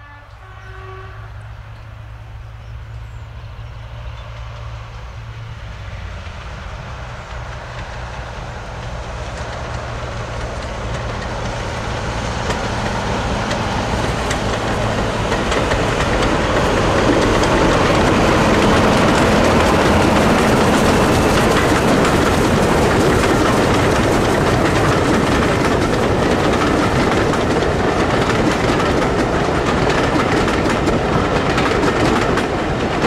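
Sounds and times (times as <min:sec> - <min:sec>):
train approaching: 0:00.0 - 0:33.0
wheels clicking on rail joints: 0:07.0 - 0:33.0.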